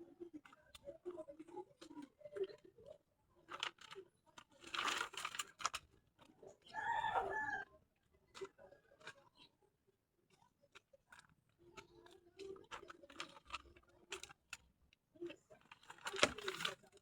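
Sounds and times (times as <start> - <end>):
rooster crowing: 6.7 - 7.6
rustling: 15.2 - 17.0.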